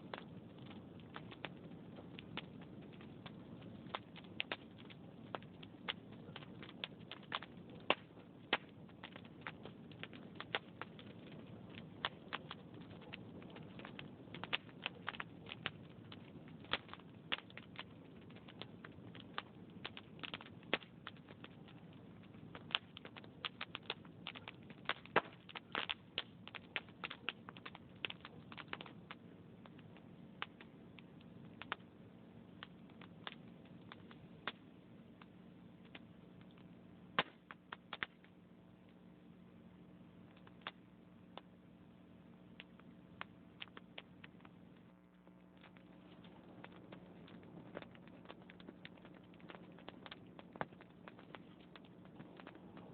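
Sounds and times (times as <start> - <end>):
faint low rumble: 0.0 - 52.9
wood fire crackling: 0.0 - 52.9.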